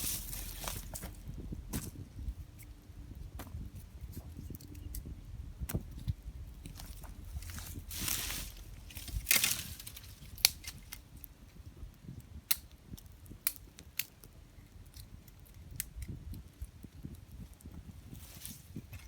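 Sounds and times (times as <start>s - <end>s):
rustling crunches: 0.0s - 2.7s, 6.6s - 11.0s, 18.1s - 19.0s
campfire crackling: 0.0s - 19.0s.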